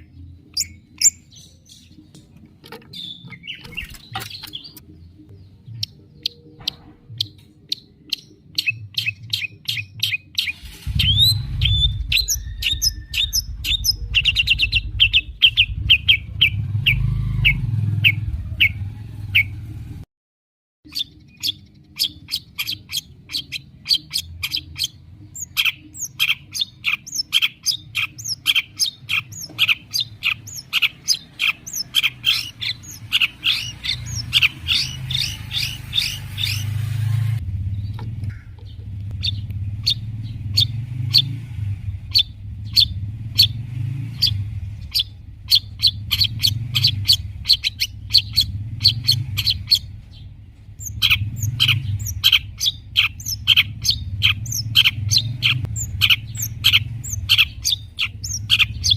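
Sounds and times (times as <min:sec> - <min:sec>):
bird rapid chirping song: 0:00.0 - 0:19.8, 0:20.8 - 0:58.9
low hum: 0:10.6 - 0:20.0, 0:31.2 - 0:58.9.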